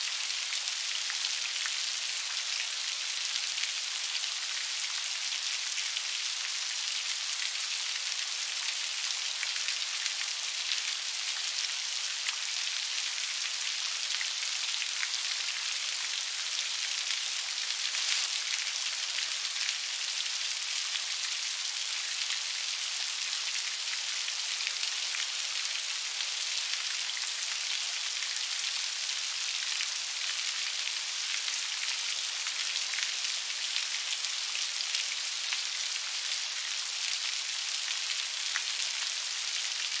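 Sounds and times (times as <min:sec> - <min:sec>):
rain pattering: 0:17.4 - 0:19.6.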